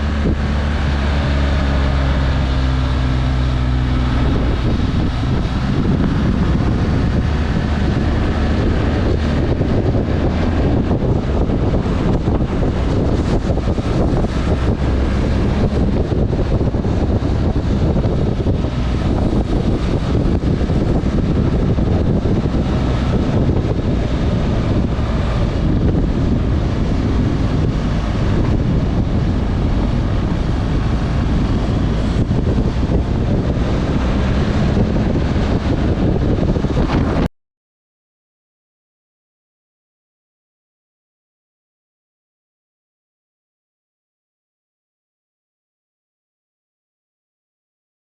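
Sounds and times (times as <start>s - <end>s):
wind buffeting microphone: 0.0s - 37.3s.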